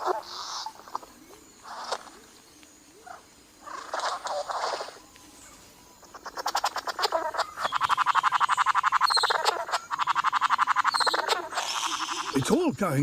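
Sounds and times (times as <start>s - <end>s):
bird buzzy rattling call: 3.0s - 5.0s, 6.0s - 12.7s.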